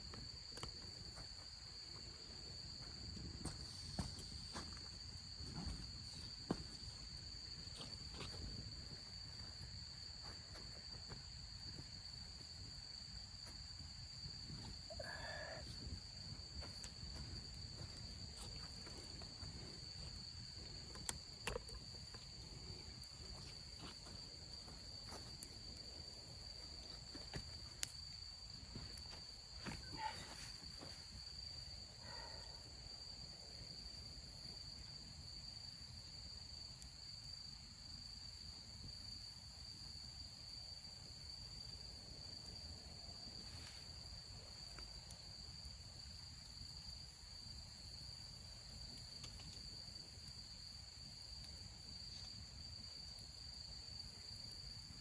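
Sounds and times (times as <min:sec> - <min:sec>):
crickets trilling: 0:00.0 - 0:55.0.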